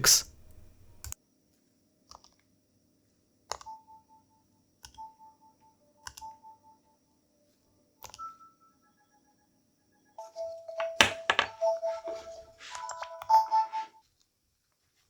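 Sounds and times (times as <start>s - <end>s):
buttons clicking: 0.0s - 1.2s, 6.0s - 6.4s.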